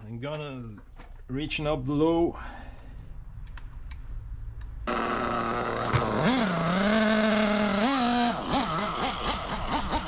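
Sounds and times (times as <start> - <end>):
nitro engine revving: 4.8 - 10.0.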